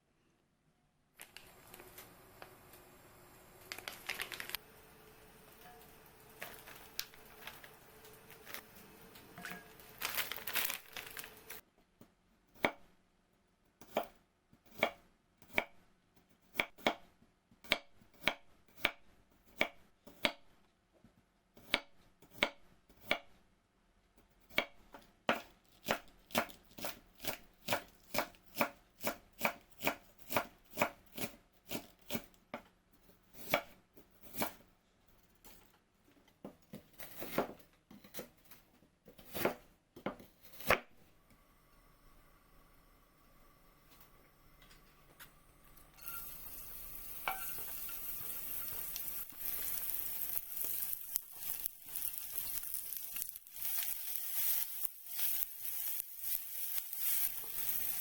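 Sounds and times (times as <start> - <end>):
rustling: 3.6 - 4.8, 5.4 - 11.6
knife chopping on cutting board: 24.5 - 32.4, 39.2 - 40.9.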